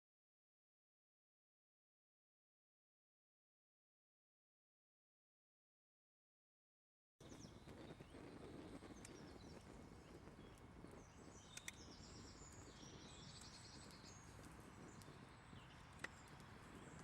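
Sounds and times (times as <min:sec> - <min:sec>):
faint birds chirping: 0:07.2 - 0:17.0
small sharp clicks: 0:08.4 - 0:17.0.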